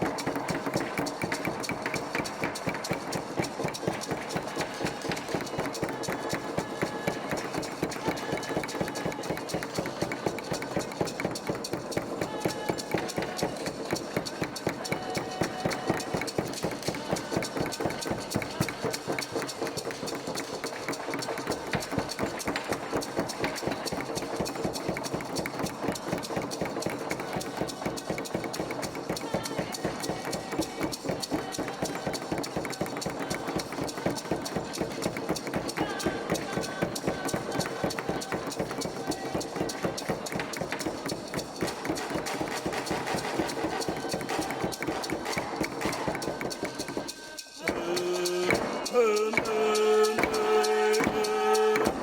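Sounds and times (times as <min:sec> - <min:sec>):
rapid clattering clicks: 0:00.0 - 0:30.0.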